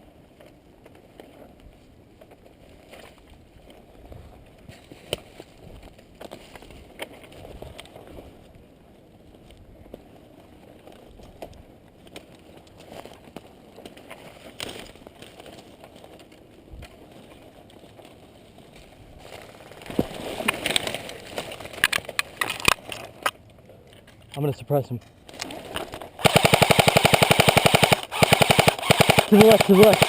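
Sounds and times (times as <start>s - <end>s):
rustle of gear and brush: 0.0s - 24.5s, 25.1s - 30.0s
sharp clicks: 26.2s - 30.0s.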